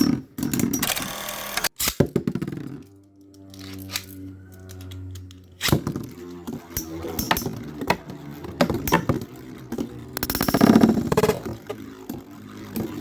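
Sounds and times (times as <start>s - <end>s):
spinning tops whirring: 3.5s - 13.0s
plastic tops clashing: 6.8s - 9.3s.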